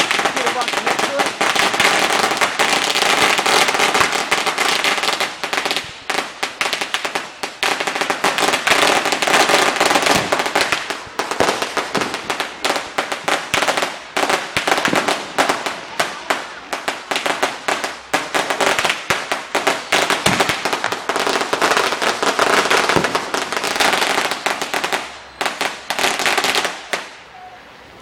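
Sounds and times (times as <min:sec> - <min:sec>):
fireworks popping and banging: 0:00.0 - 0:27.2.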